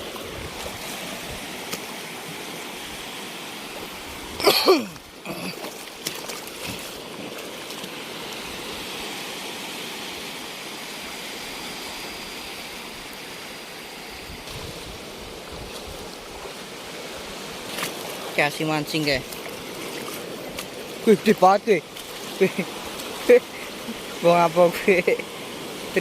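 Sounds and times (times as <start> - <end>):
shallow water washing and trickling: 0.0 - 26.0
light splashes: 4.4 - 8.0.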